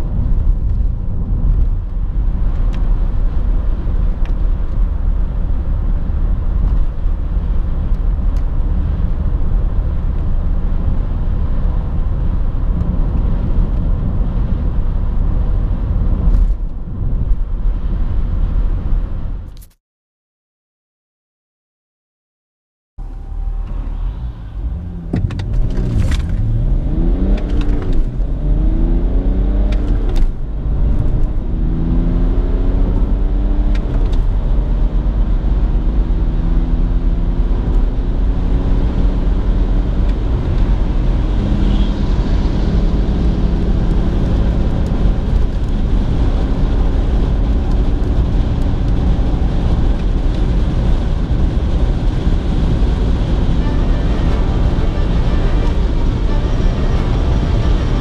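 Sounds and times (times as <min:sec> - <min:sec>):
road and wind noise: 0:00.0 - 0:19.8, 0:23.0 - 0:58.0
diesel engine accelerating: 0:23.0 - 0:58.0.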